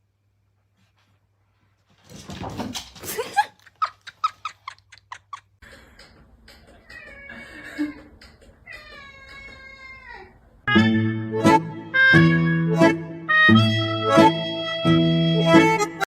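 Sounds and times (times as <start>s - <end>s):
cat meowing: 6.8s - 10.4s.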